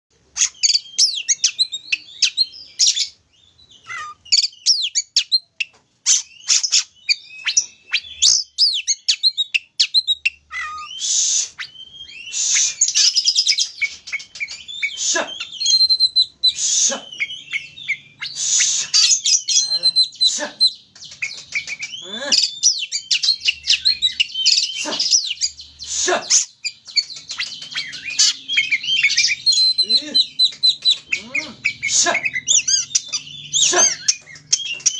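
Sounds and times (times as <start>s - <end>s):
bird singing varied song: 0.1s - 34.9s.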